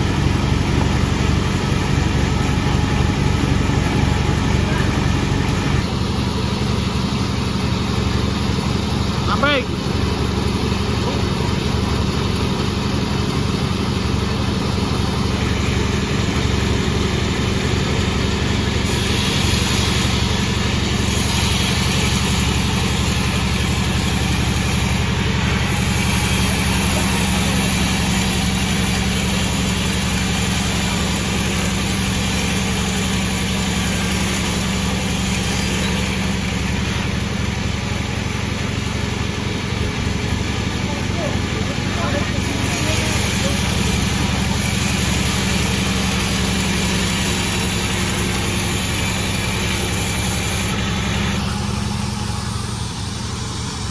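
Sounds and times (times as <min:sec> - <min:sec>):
sawmill machine humming: 0:00.0 - 0:53.9
saw cutting log hiss: 0:14.9 - 0:53.9.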